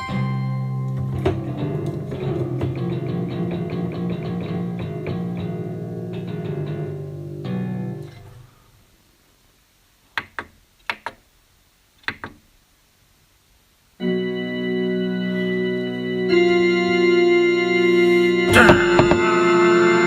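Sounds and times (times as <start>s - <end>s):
electronic keyboard music: 14.0s - 20.0s.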